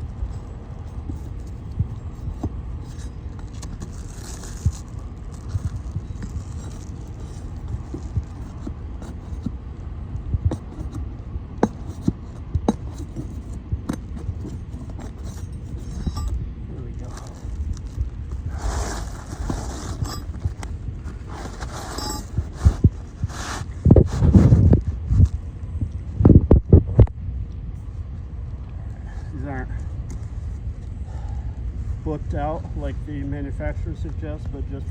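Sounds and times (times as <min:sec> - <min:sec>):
nails scraping out of shingles: 0:17.0 - 0:24.4.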